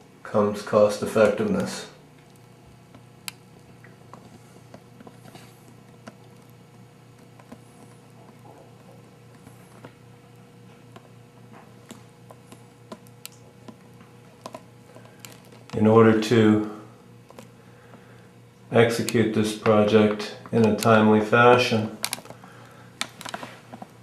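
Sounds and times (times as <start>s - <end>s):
faint low hum: 0.0s - 24.0s
small clicks and ticks: 1.6s - 15.8s, 17.2s - 18.0s, 22.0s - 24.0s.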